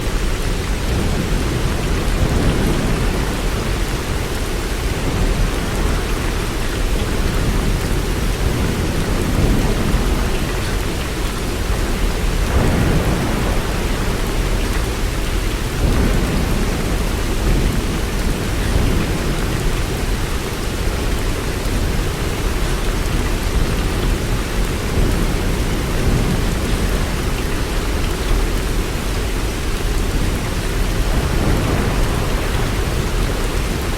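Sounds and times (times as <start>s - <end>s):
heavy rain hissing: 0.0s - 33.9s
distant thunder rumbles: 0.8s - 20.1s, 29.9s - 33.9s.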